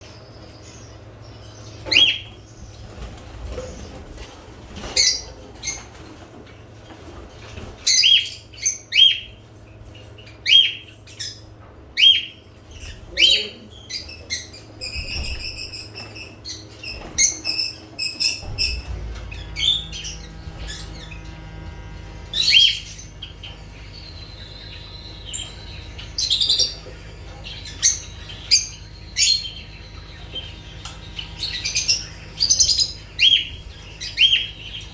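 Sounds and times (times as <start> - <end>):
lovebirds chattering: 0.0 - 34.9
low steady hum: 0.0 - 34.9
lovebirds chirping: 7.5 - 34.9.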